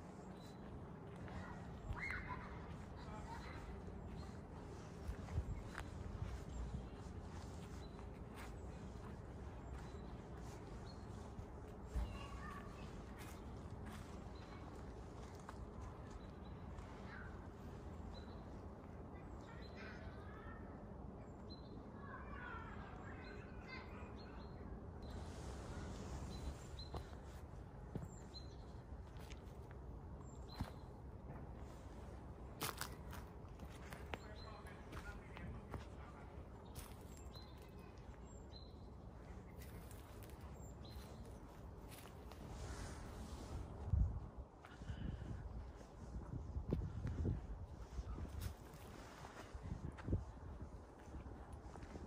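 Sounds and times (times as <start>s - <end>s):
faint bird chirps: 1.3s - 14.8s.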